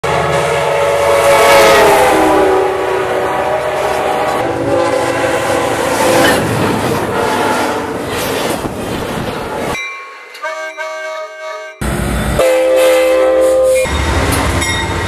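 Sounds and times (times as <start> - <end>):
train horn: 0.0 - 6.4, 7.1 - 7.9, 10.4 - 14.1
train wheels clattering on rails: 5.4 - 10.5, 12.8 - 15.0.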